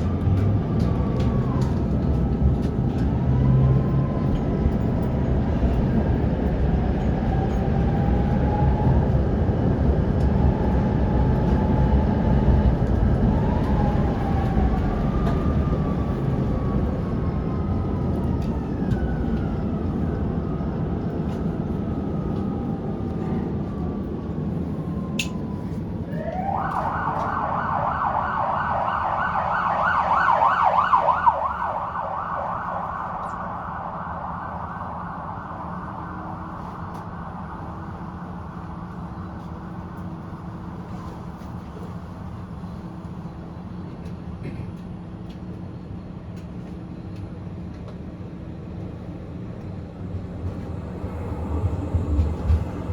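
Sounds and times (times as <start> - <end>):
tram motor whine: 0.0 - 52.9
tram rumble: 0.0 - 52.9
siren-like wail warbling: 25.0 - 38.0.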